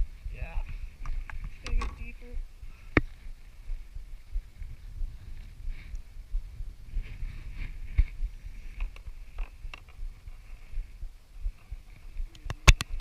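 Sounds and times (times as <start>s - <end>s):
low thumping rumble: 0.0s - 13.0s.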